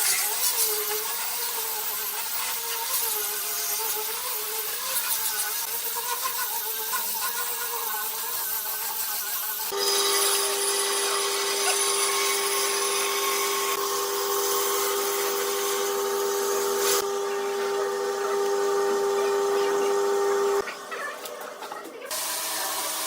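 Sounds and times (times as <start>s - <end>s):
power tool whining: 0.0s - 20.6s, 22.1s - 23.0s.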